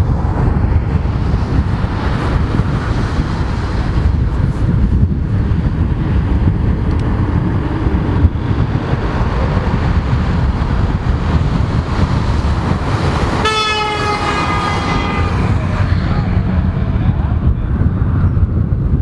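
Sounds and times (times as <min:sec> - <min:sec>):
aircraft engines rumbling: 0:00.0 - 0:19.0
wind buffeting microphone: 0:00.0 - 0:19.0
pitched droning note: 0:11.1 - 0:18.0.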